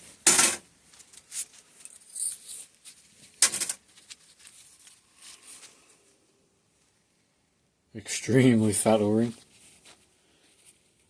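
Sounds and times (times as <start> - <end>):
small parts clicking and rustling: 0.2 - 5.0.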